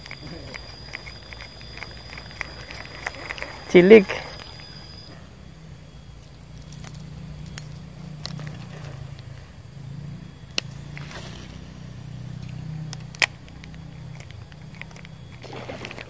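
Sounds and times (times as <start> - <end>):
handling clicks: 0.0 - 5.1, 12.3 - 16.0
low steady rumble: 0.0 - 16.0.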